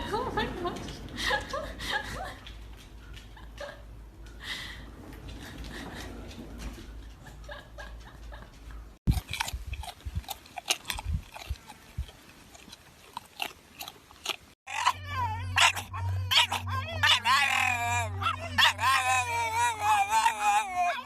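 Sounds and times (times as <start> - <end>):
pet chewing crunchy food: 8.2 - 17.2.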